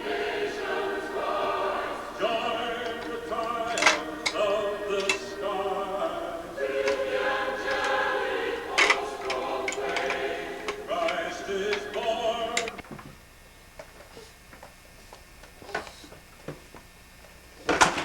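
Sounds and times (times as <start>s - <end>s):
choral music: 0.0s - 12.8s.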